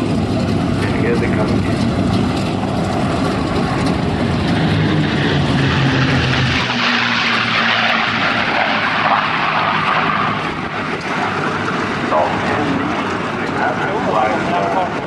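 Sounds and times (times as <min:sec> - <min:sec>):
propeller planes passing: 0:00.0 - 0:15.0
rushing noise: 0:02.4 - 0:13.6.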